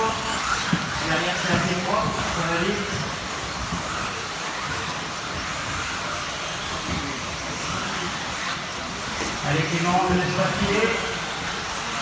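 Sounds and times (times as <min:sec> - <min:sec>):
rc car motors and tyres: 0:00.0 - 0:12.0.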